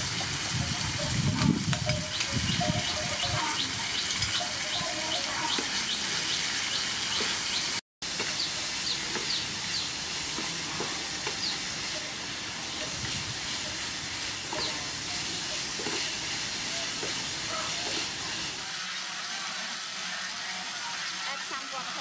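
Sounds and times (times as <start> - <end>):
food sizzling in a frying pan: 0.0 - 22.0
birds chirping: 1.8 - 10.0, 11.2 - 13.0, 14.5 - 15.6.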